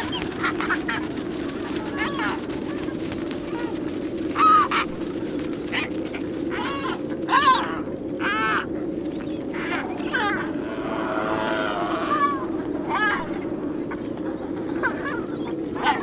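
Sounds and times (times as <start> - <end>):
faint rapid clicking: 0.0 - 7.5
harsh bird calls: 0.0 - 16.0
steady low hum: 0.0 - 16.0.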